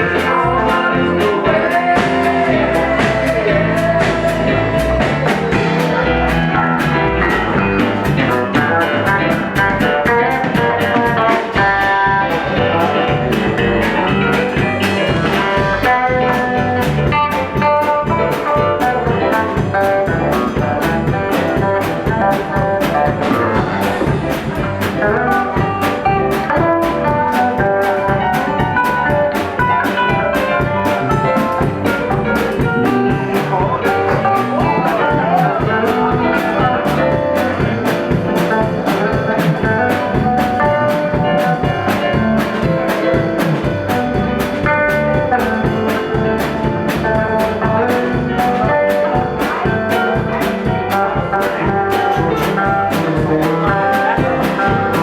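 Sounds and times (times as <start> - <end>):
bass guitar: 0.0 - 55.0
drum kit: 0.0 - 55.0
electric guitar notes: 0.0 - 55.0.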